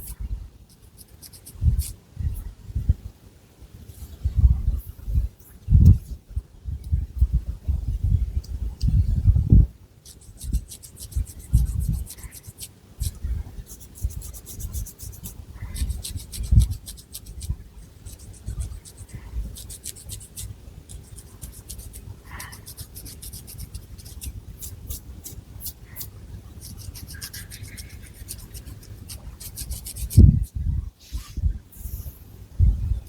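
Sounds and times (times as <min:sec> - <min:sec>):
fingernails scratching hair and scalp: 0:00.7 - 0:02.0, 0:10.0 - 0:30.6.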